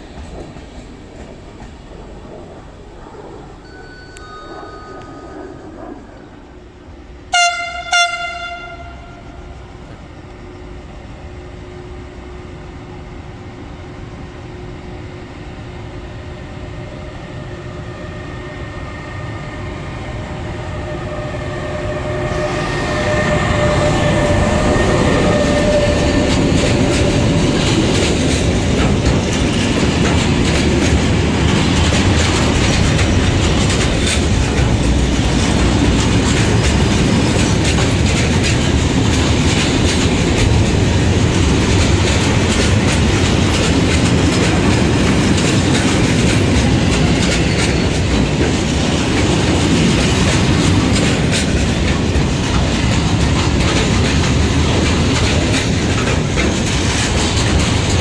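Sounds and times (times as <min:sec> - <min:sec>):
electric locomotive whine: 0:00.0 - 0:58.0
freight wagons rumbling: 0:21.1 - 0:58.0
wheels clacking over rail joints: 0:21.8 - 0:58.0.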